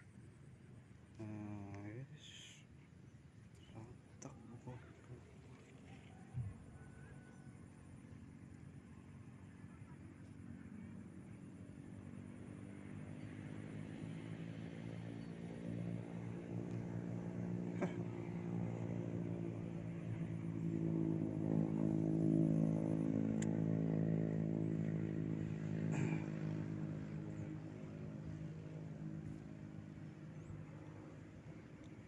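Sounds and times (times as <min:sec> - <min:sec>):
engine running: 0:07.9 - 0:32.0.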